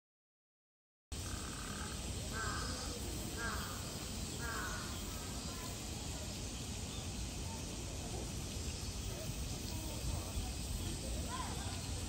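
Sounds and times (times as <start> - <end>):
bird harsh calls: 1.2 - 5.8.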